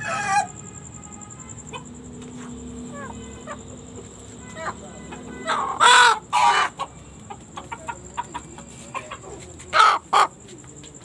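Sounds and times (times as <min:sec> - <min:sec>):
chicken squawks: 0:01.7 - 0:10.4
chickens clucking: 0:01.7 - 0:11.0.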